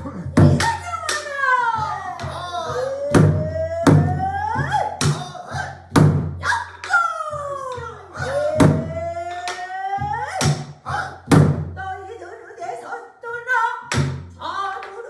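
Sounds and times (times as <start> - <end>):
person singing long sliding notes: 0.6 - 11.3
barrel drum strikes: 2.2 - 6.4, 7.8 - 9.0, 10.2 - 11.8.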